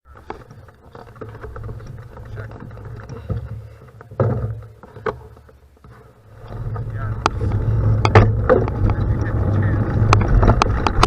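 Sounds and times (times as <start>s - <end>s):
crunching and rattling on gravel: 0.0s - 11.0s
wind rumble on microphone: 6.4s - 11.0s.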